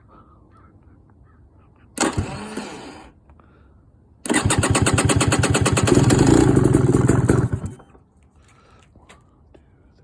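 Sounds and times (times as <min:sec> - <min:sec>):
two-stroke engine starting: 0:02.0 - 0:03.1, 0:04.2 - 0:08.0.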